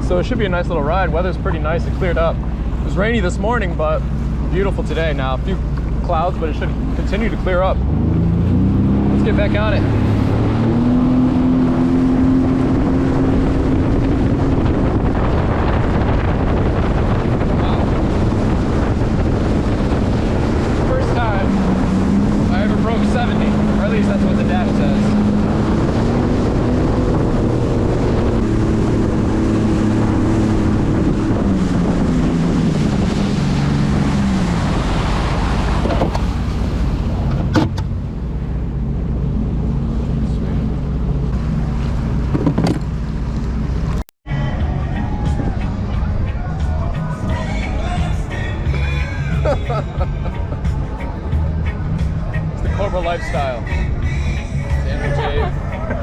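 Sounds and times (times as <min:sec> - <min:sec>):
jet ski engine whine: 0:00.0 - 0:56.0
rush of wind and water: 0:00.0 - 0:56.0.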